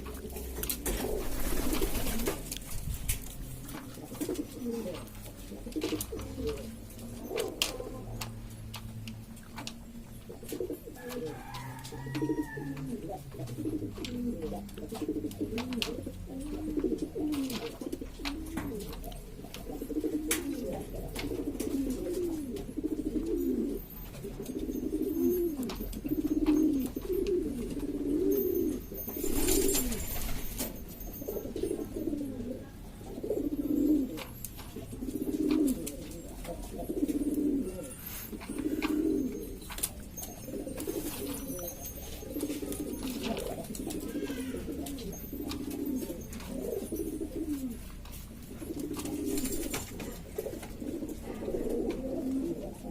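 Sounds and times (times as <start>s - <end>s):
pigeons cooing: 0.0s - 52.9s.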